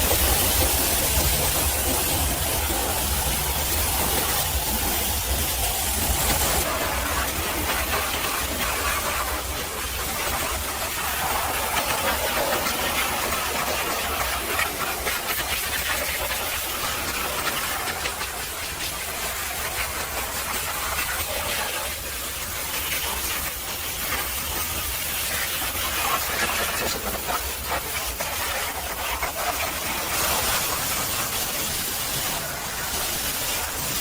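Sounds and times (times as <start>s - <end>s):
pressure washer spray hissing: 23.5s - 34.0s.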